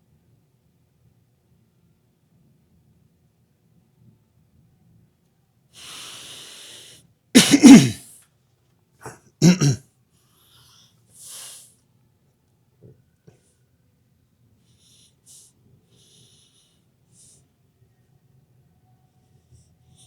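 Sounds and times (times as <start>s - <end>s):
man coughing or sneezing: 7.4s - 8.0s, 9.0s - 9.8s.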